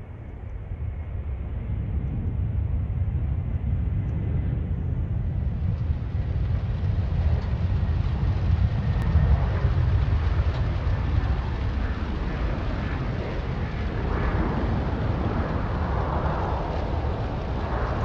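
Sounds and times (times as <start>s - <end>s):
aircraft rumble: 0.0s - 18.0s.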